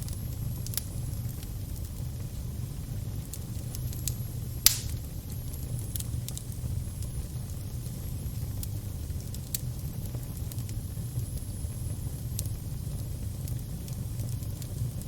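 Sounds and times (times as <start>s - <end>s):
fire crackling: 0.0s - 15.0s
loud pop: 4.6s - 5.0s.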